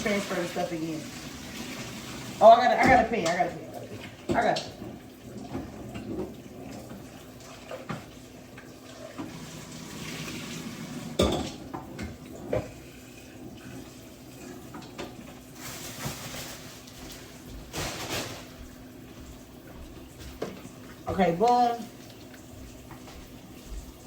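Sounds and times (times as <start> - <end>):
kitchen tap running: 0.0 - 24.0
pots and pans clanking: 2.7 - 8.1, 11.0 - 12.8.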